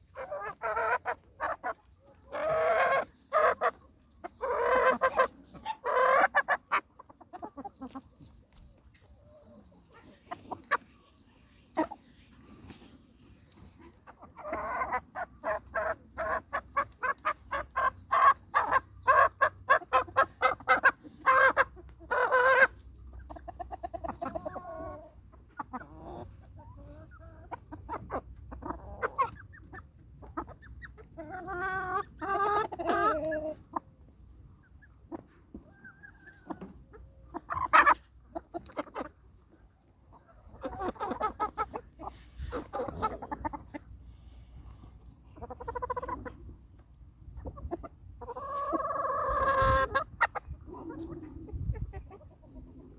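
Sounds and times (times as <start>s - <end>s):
chickens clucking: 0.0s - 52.9s.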